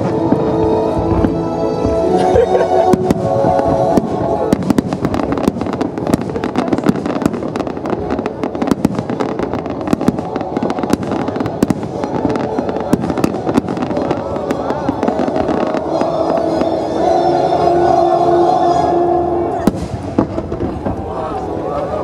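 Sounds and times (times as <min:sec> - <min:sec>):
fireworks bursts and crackling: 0:00.0 - 0:22.0
sharp firework bangs: 0:19.6 - 0:21.0.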